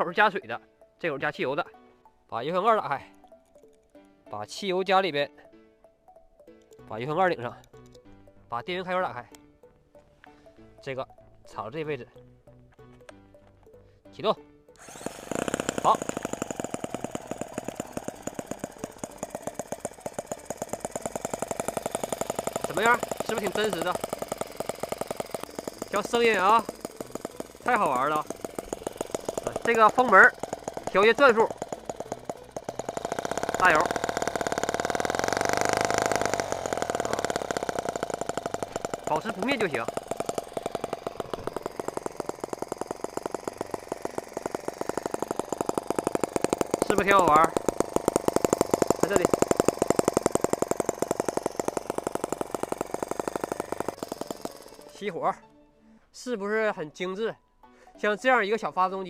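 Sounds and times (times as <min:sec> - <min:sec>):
model engine running: 0:14.8 - 0:55.2.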